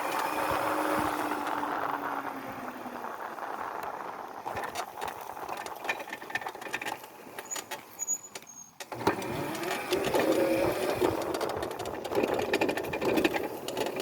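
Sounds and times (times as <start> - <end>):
electric motor and chain whine: 0.0 - 3.7, 8.8 - 14.0
electric dirt bike rattling: 0.0 - 8.2, 8.8 - 14.0.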